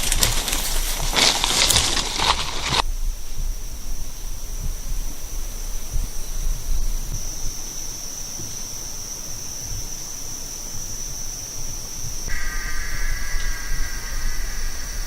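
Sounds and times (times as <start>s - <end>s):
low uneven rumble: 0.0s - 8.8s
insects droning: 0.0s - 15.0s.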